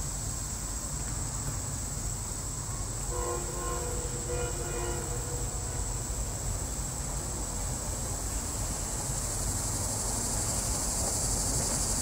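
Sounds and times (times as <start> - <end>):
insects buzzing: 0.0 - 12.0
train rumbling past: 0.0 - 12.0
train horn blasts: 3.0 - 6.5.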